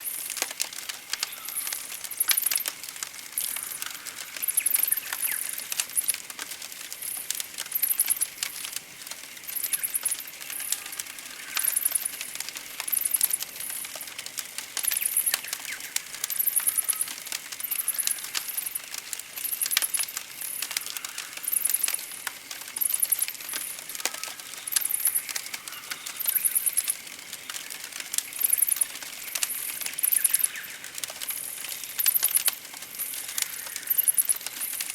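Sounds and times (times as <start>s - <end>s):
campfire crackling and popping: 0.0s - 34.9s
faint bird calls: 23.9s - 27.0s.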